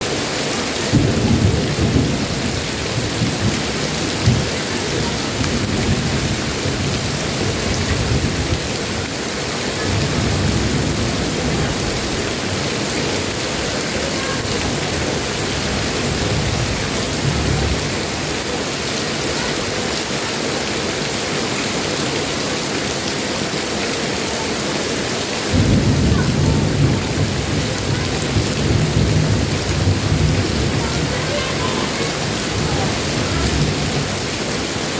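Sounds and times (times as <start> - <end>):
heavy rain: 0.0 - 34.9
thunder rumbling: 0.9 - 9.0, 9.8 - 18.5, 25.5 - 34.7.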